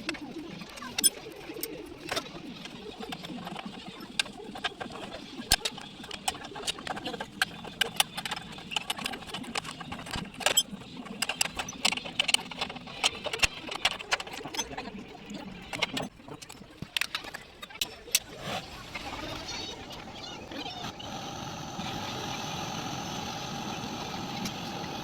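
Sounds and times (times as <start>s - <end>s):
sharp clicks and light knocks: 0.0s - 18.3s.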